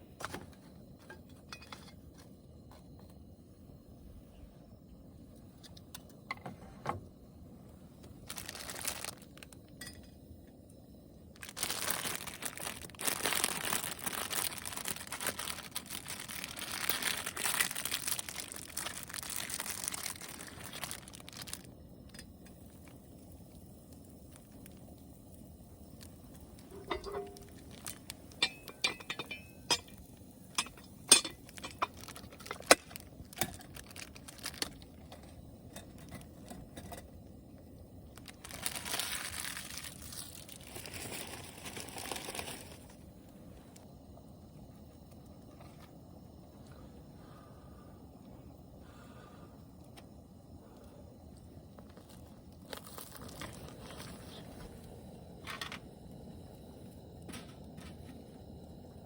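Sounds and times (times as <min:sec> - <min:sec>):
wrapping crinkling: 0:08.2 - 0:09.9, 0:11.3 - 0:23.0, 0:26.0 - 0:37.2, 0:38.1 - 0:43.0, 0:51.7 - 0:55.7
light clinks: 0:28.4 - 0:30.0.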